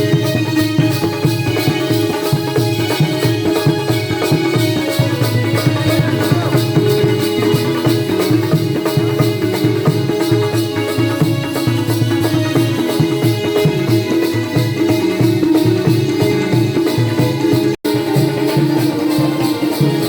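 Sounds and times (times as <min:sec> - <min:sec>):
fast jingling percussion beat: 0:00.0 - 0:20.0
steady held tones: 0:00.0 - 0:20.0.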